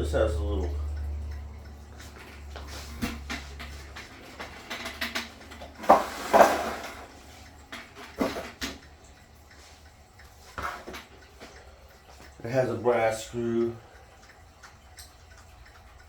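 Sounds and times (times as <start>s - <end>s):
knocks and clatter of beehive parts: 3.0s - 7.1s.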